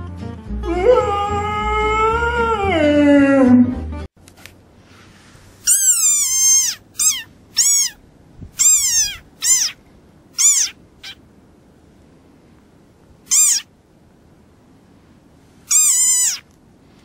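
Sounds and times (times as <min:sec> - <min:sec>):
frog squeaking: 0:05.6 - 0:08.0, 0:08.6 - 0:09.8, 0:10.4 - 0:11.2, 0:13.3 - 0:13.7, 0:15.7 - 0:16.5.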